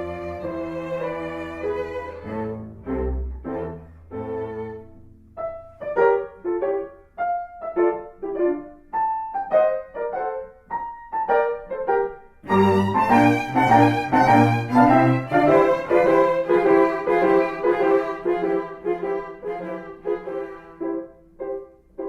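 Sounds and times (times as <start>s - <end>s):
bowed strings: 0.0s - 5.1s, 12.5s - 21.0s
piano notes: 0.0s - 22.0s
plucked melody notes: 12.5s - 20.4s.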